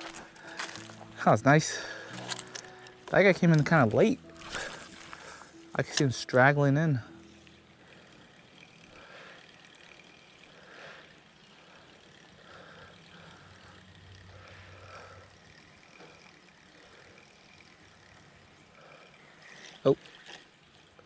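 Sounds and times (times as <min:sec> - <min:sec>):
distant vehicle engine hum: 0:00.0 - 0:20.9
outdoor background sounds: 0:00.0 - 0:21.0.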